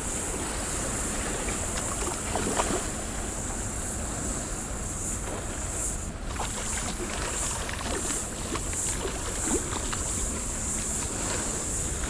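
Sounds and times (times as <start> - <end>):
water lapping and splashing: 0.0 - 12.0
small splashes and clicks: 6.3 - 11.2.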